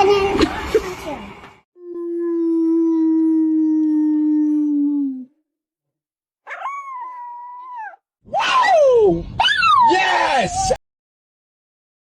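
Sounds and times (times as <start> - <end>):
dog howling: 6.5 - 10.0.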